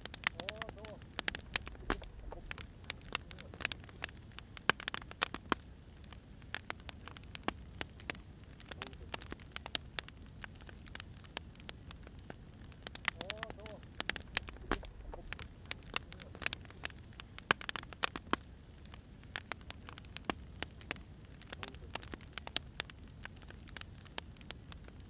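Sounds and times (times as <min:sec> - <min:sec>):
low steady rumble: 0:00.0 - 0:17.6
wood fire crackling: 0:00.0 - 0:25.0.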